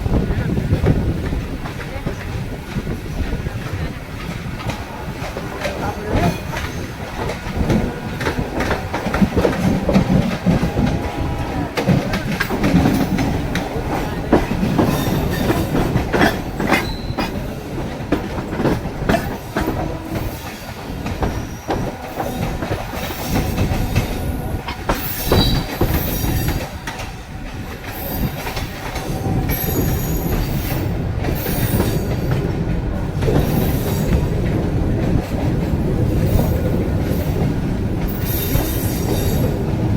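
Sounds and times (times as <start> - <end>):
electric train rumbling on tracks: 0.0 - 39.9
wheels clattering over rail joints: 0.0 - 39.9
high wheel squeals: 16.3 - 17.5.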